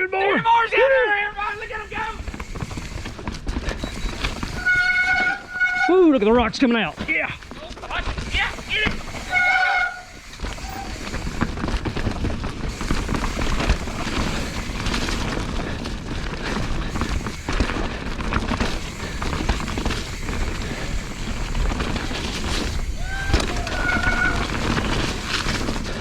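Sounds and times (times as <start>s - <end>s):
bike clattering over rocks: 1.4s - 26.0s.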